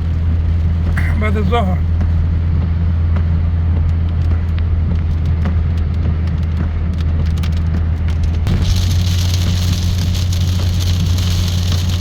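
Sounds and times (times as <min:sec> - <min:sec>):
car engine idling: 0:00.0 - 0:12.0
raindrops ticking on a surface: 0:00.0 - 0:12.0
rain hiss: 0:08.5 - 0:12.0.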